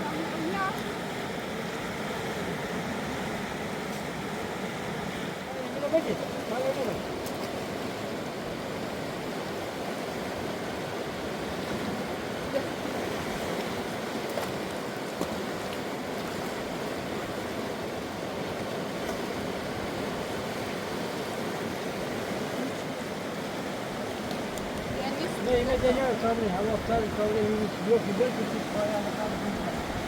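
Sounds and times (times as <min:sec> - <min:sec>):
fast river rushing: 0:00.0 - 0:30.0.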